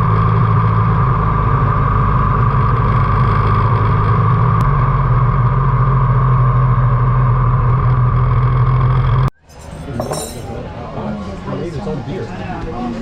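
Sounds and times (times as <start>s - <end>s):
motorcycle engine cruising: 0.0s - 9.3s
road noise: 0.0s - 13.0s.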